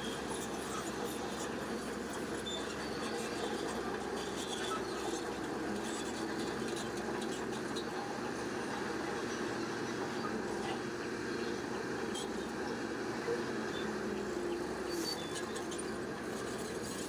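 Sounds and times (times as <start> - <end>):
bulldozer working: 0.0 - 17.0.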